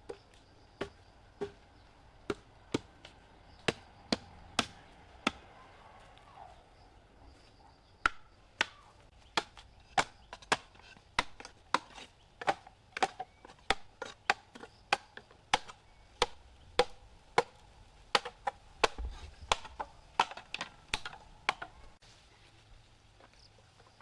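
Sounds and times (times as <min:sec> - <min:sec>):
blade chopping: 0:03.6 - 0:05.6, 0:08.0 - 0:17.6.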